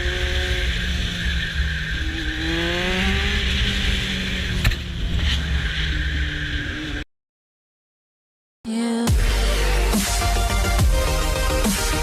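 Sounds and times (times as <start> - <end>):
motorcycle engine accelerating: 0.0 - 7.0.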